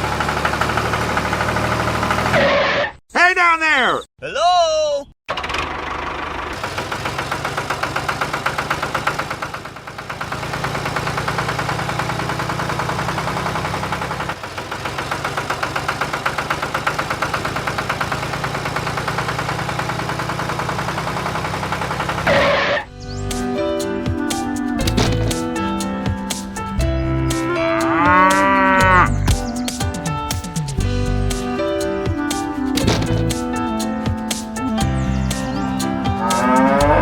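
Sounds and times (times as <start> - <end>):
small tractor engine chugging: 0.0 - 2.4, 5.3 - 23.3, 32.3 - 33.6.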